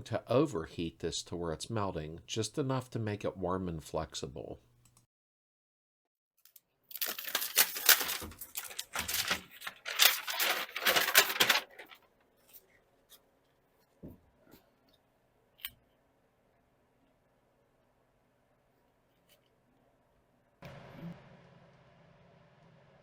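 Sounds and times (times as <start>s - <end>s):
sheet crinkling and tearing: 6.9s - 12.8s.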